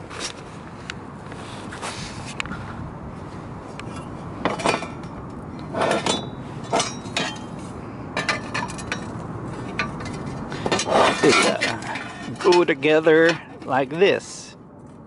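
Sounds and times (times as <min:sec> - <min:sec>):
metallic ring: 0:04.0 - 0:13.7
steel tools clinking and clanking: 0:04.5 - 0:05.1, 0:05.7 - 0:13.9.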